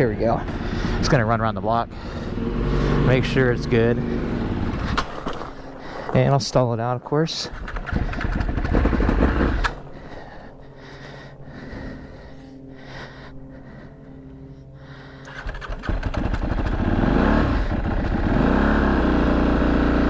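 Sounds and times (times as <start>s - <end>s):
motorcycle engine revving and idling: 0.0s - 6.4s, 7.3s - 10.8s, 15.1s - 20.0s.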